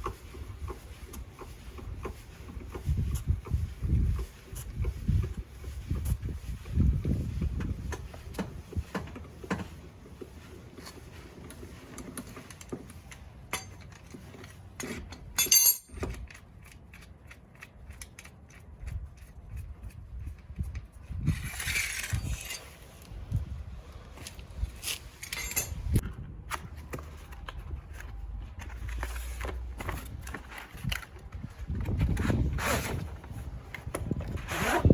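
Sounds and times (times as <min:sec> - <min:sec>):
tools clattering: 0:12.0 - 0:16.2, 0:25.1 - 0:25.9
metal tools clinking: 0:13.5 - 0:14.2, 0:14.9 - 0:16.2, 0:25.1 - 0:25.9.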